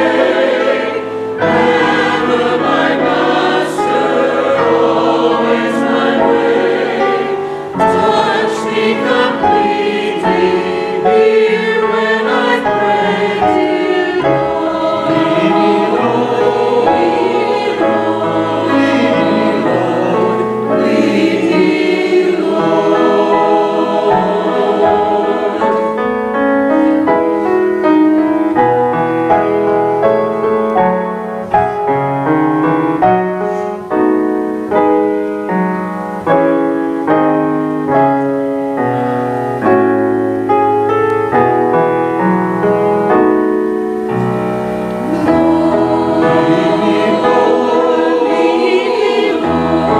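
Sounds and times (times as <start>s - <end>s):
choir singing: 0.0s - 31.1s, 41.3s - 49.9s
instrumental accompaniment: 0.0s - 49.9s
piano sustained chords: 0.0s - 49.9s.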